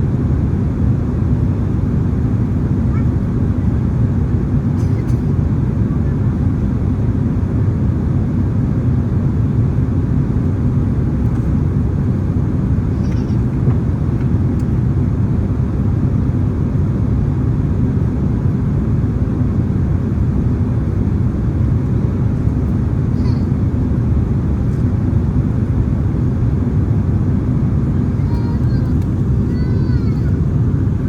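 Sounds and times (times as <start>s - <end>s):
airplane cabin engine drone: 0.0s - 31.0s.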